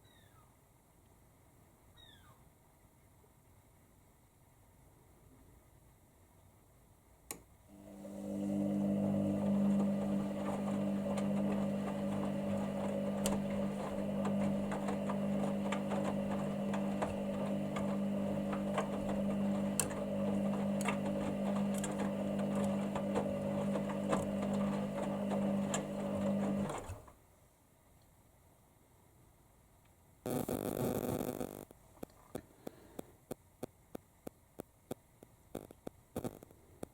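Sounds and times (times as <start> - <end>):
washer-dryer motor humming: 7.7 - 27.1
washing machine click: 9.0 - 27.0.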